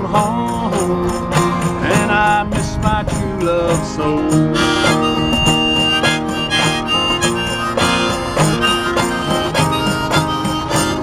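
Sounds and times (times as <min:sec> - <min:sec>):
strummed acoustic guitar: 0:00.0 - 0:11.0
harmonica melody: 0:04.5 - 0:11.0.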